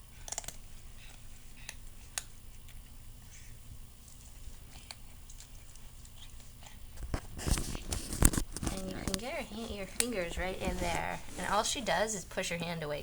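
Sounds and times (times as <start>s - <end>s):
kitten chewing and licking: 0.0s - 12.0s.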